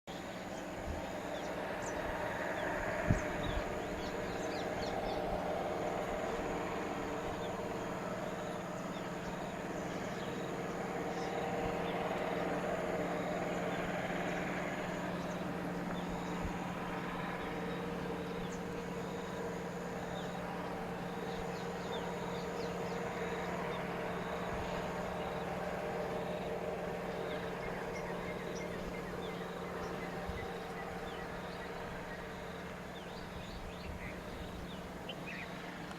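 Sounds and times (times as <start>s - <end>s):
low steady hum: 0.1s - 35.9s
small birds chirping: 0.1s - 35.9s.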